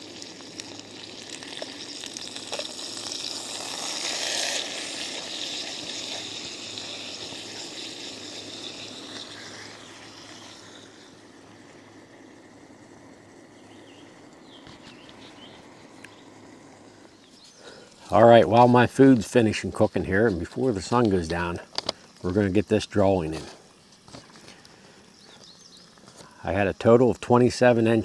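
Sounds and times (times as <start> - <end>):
steak sizzling in frying pan: 0.0 - 10.8.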